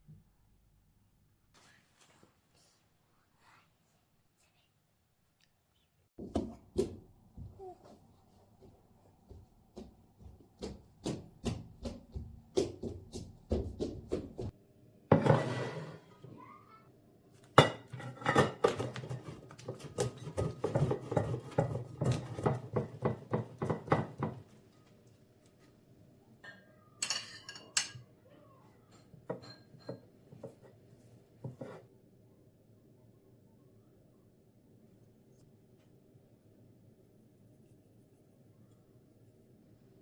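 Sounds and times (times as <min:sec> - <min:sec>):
dishes and cutlery clattering: 0:15.1 - 0:16.0, 0:17.6 - 0:24.4, 0:26.4 - 0:28.1, 0:29.0 - 0:30.6.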